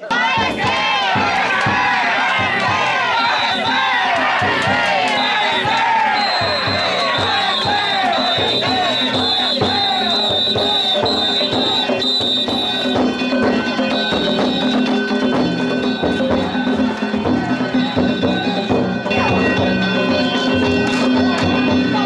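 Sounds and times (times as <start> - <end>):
drums beaten in quick rhythm: 0.0 - 22.0
metal gongs ringing: 13.0 - 22.0.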